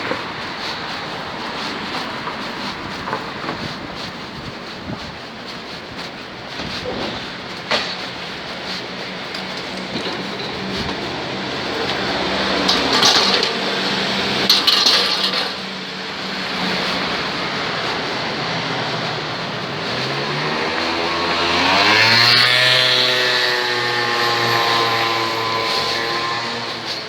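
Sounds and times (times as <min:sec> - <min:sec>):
street traffic noise: 0:00.0 - 0:27.0
vehicle engine revving: 0:08.8 - 0:27.0.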